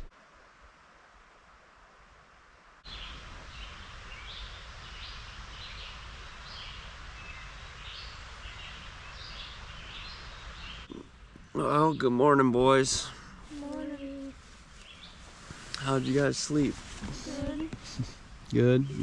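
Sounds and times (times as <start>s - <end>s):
steady rushing hiss: 0.0s - 19.0s
songbird calling: 2.9s - 18.0s.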